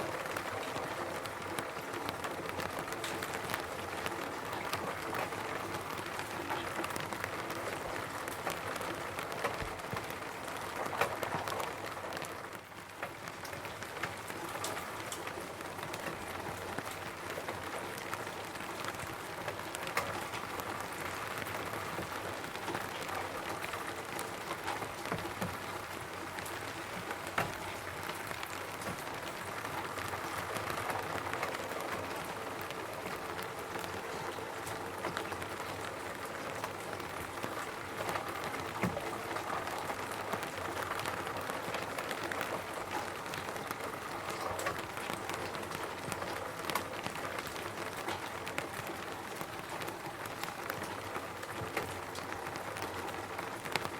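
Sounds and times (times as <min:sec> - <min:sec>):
rain on a roof: 0:00.0 - 0:53.9.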